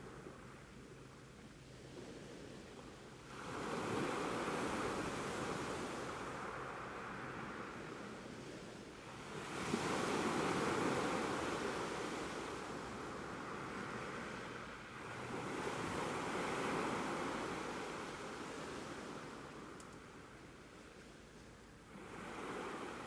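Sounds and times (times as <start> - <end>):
ocean waves washing in: 3.2 - 19.8, 21.9 - 23.0.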